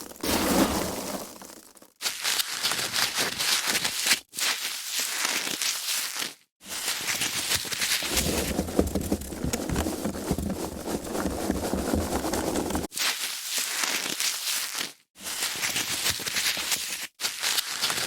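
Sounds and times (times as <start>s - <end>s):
foam packaging crackling and creaking: 7.0s - 12.9s
deep rubbing of foam: 8.0s - 12.9s.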